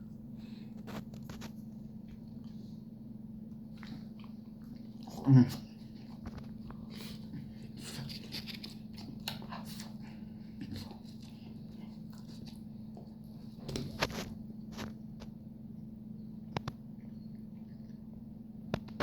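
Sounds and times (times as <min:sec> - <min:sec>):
steady low hum: 0:00.0 - 0:19.0
crunchy chewing: 0:03.6 - 0:15.3.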